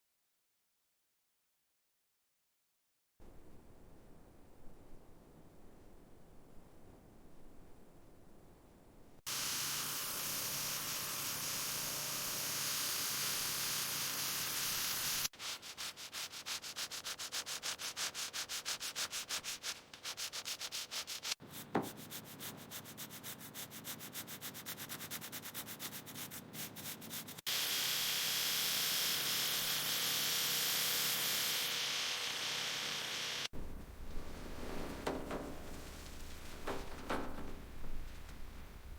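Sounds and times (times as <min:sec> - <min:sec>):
steady hiss: 0:09.3 - 0:15.3, 0:27.4 - 0:38.9
hand sanding strokes: 0:13.0 - 0:27.4, 0:33.6 - 0:38.9
short squeak: 0:33.6 - 0:38.9.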